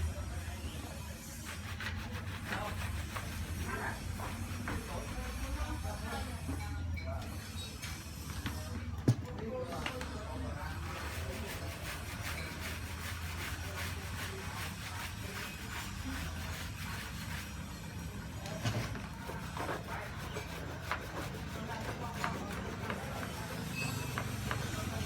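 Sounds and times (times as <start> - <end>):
scrubbing strokes: 10.8 - 17.8, 19.1 - 23.6.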